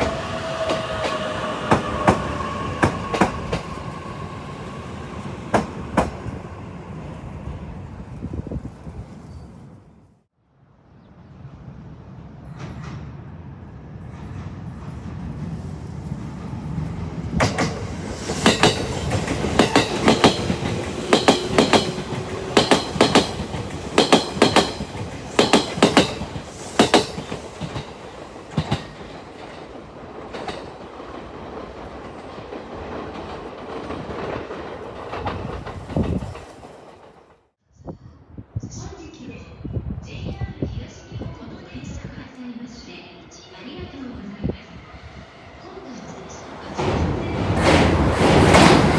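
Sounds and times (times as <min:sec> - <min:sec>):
train wheels clacking on rail joints: 0:00.0 - 0:03.8, 0:05.5 - 0:06.3, 0:16.7 - 0:37.4, 0:46.8 - 0:48.9
train rolling rumble: 0:00.0 - 0:10.1, 0:11.2 - 0:37.5, 0:39.8 - 0:48.9.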